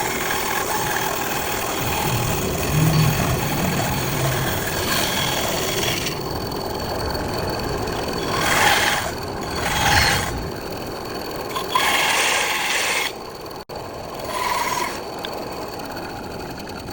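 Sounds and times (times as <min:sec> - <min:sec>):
bandsaw cutting wood: 0:00.0 - 0:06.3, 0:08.0 - 0:10.6, 0:11.5 - 0:13.2, 0:14.2 - 0:15.1.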